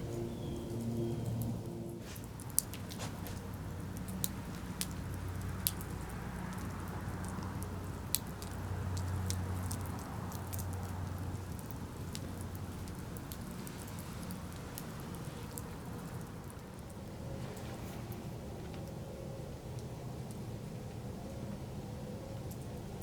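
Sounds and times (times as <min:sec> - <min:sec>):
low steady hum: 0:00.0 - 0:04.2
campfire crackling: 0:01.5 - 0:18.9.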